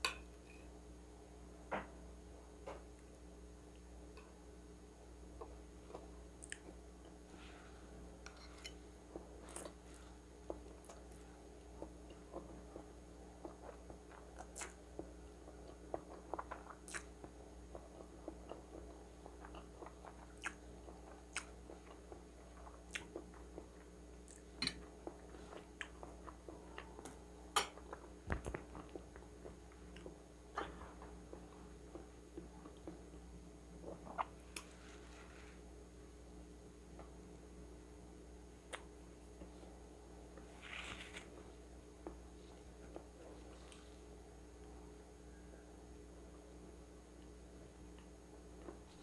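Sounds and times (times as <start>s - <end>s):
chewing with wet mouth clicks: 5.9s - 6.7s, 13.4s - 27.2s.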